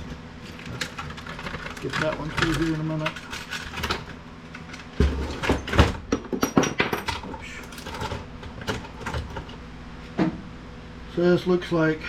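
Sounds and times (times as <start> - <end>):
printer parts clicking and knocking: 0.0 - 9.6.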